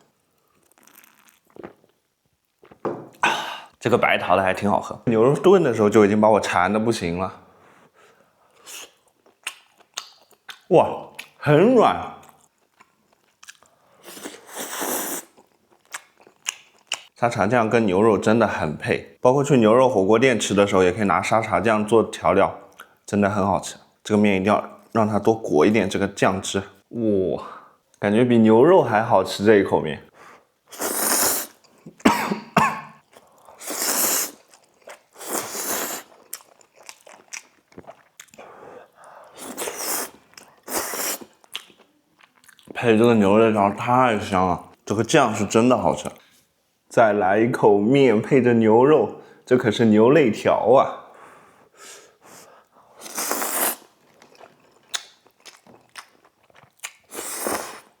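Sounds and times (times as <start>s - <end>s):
chewing: 12.2s - 17.1s, 33.1s - 38.6s, 39.2s - 42.8s, 53.0s - 57.9s
person slurping noodles: 14.0s - 15.3s, 30.7s - 31.6s, 33.5s - 34.5s, 35.1s - 36.2s, 39.2s - 41.4s, 52.3s - 53.9s, 57.1s - 58.0s.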